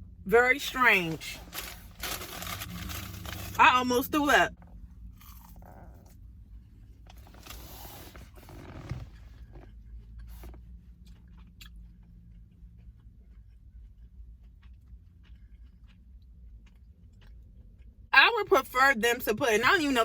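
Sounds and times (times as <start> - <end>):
steady low hum: 0.0 - 20.0
person chewing food: 1.4 - 3.6, 4.6 - 18.1.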